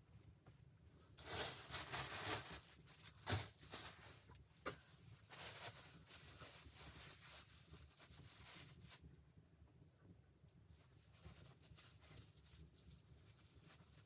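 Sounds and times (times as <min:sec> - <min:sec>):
rustling and scraping handling: 0:00.3 - 0:09.2, 0:10.5 - 0:14.0.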